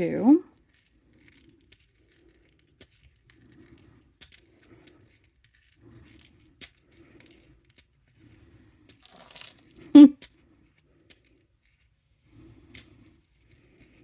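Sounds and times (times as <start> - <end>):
glass beads clicking and rattling: 9.0 - 9.7.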